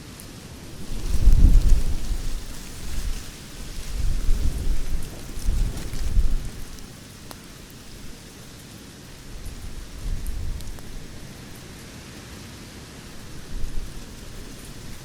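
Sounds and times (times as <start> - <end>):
campfire crackling and popping: 0.2 - 11.7.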